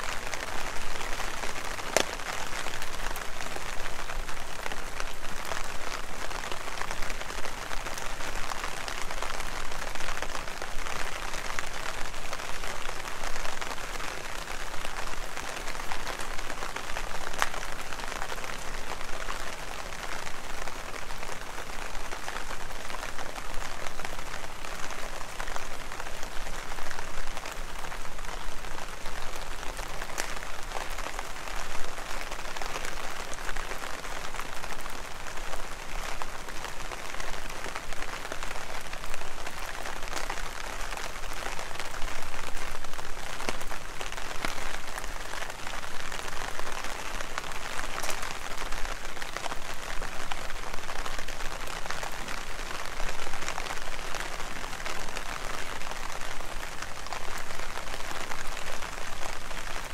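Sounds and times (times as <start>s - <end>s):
heavy rain splashing: 0.0s - 59.9s.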